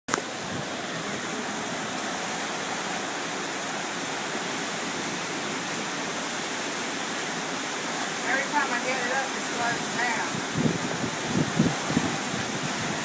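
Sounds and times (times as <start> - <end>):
heavy rain: 0.1 - 13.0
strong wind rushing: 0.3 - 1.8, 9.7 - 13.0.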